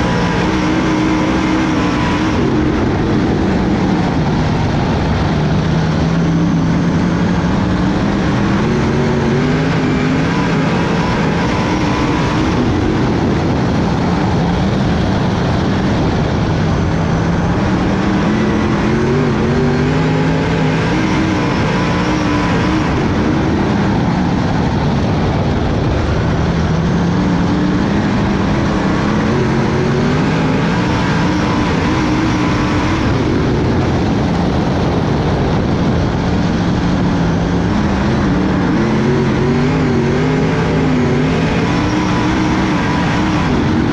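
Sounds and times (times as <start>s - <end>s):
race car engines revving: 0.0s - 43.9s.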